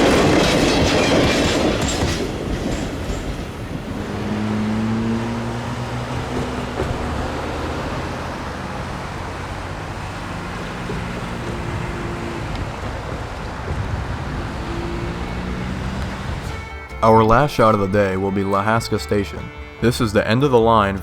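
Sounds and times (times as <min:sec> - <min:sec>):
train wheels on rails: 0:00.0 - 0:18.7
diesel locomotive engine drone: 0:00.0 - 0:21.0.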